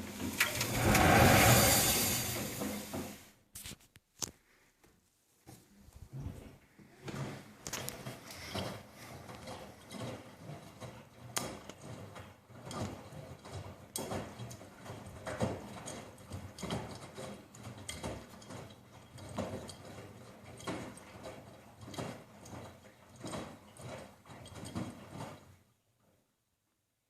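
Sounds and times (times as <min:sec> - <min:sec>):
washing machine running: 0:00.0 - 0:03.3.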